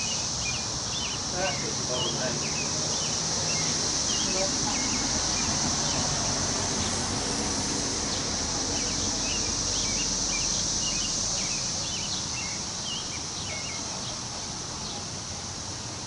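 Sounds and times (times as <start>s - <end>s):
high insect drone: 0.0s - 16.0s
wind rushing through trees: 0.0s - 16.0s.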